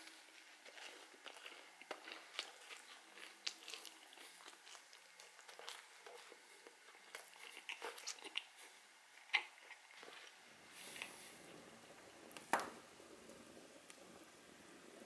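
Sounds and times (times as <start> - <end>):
person chewing crunchy food: 0.0 - 11.8.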